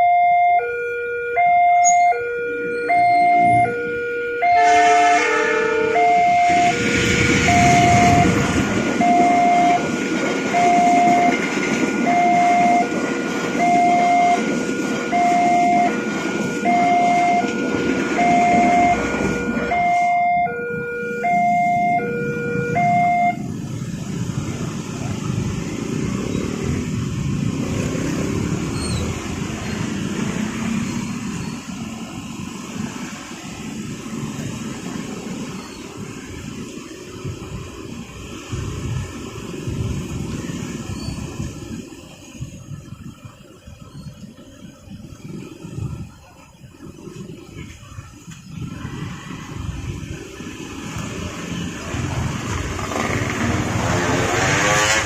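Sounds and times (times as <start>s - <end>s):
two-tone crossing alarm: 0.0s - 23.7s
steady rumble of noise: 0.0s - 55.0s
train wheels rumbling on rail: 4.6s - 20.1s, 23.4s - 55.0s.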